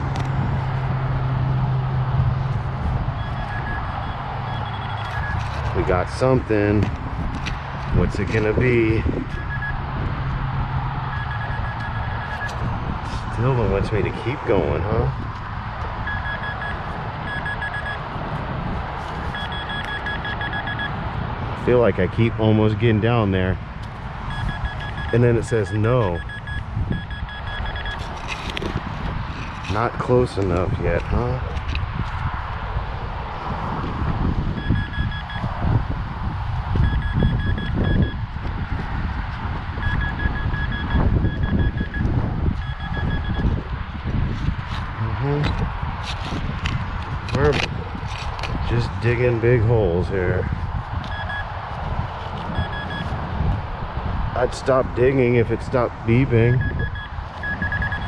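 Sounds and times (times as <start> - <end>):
wind rumble: 0.0 - 58.0
metal detector chirping: 3.2 - 5.8, 9.3 - 9.8, 11.1 - 12.6, 16.0 - 18.0, 19.3 - 20.9, 24.3 - 28.5, 34.6 - 35.5, 36.8 - 38.2, 39.8 - 43.4, 52.5 - 53.1, 56.6 - 58.0.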